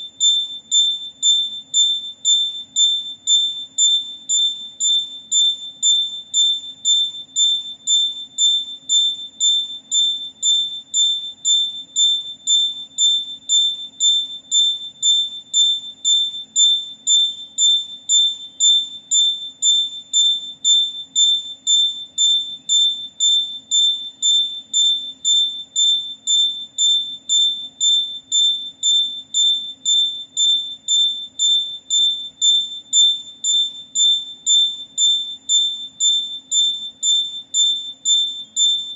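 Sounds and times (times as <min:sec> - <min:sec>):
electronic buzzer beeping: 0:00.0 - 0:38.9.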